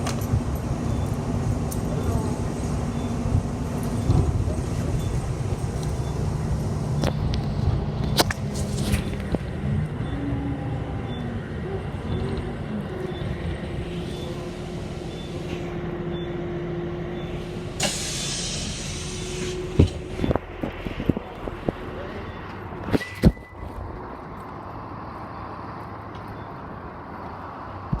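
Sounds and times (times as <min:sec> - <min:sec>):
bus engine humming and whining: 0:00.0 - 0:28.0
compressed air hiss: 0:17.8 - 0:19.7.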